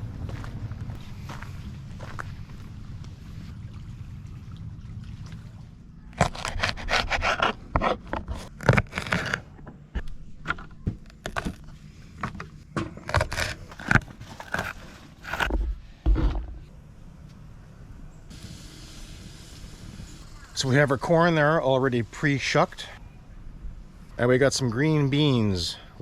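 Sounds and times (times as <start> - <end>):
objects scraping and knocking: 7.2 - 16.7.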